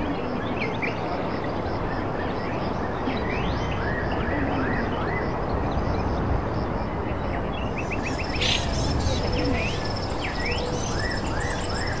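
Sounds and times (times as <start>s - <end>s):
birds chirping: 7.5s - 12.0s.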